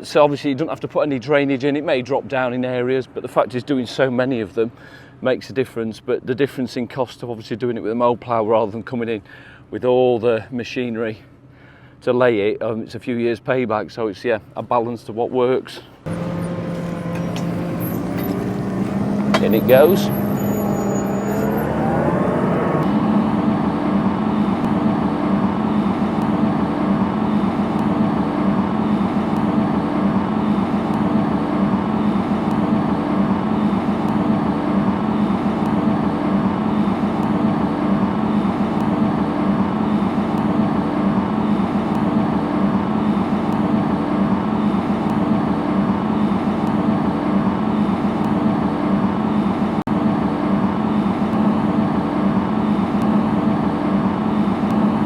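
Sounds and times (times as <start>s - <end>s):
tractor diesel engine droning: 16.1s - 24.4s.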